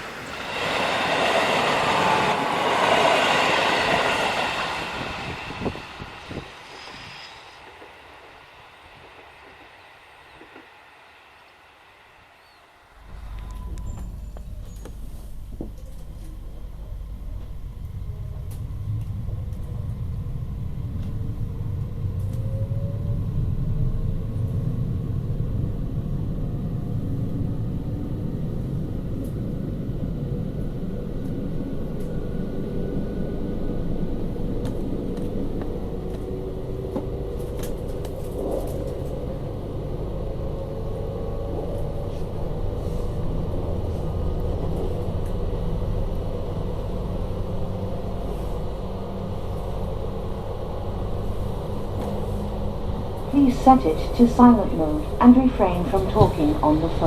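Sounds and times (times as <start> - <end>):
faint rising tones: 0.0 - 15.3
train rumbling: 0.0 - 57.0.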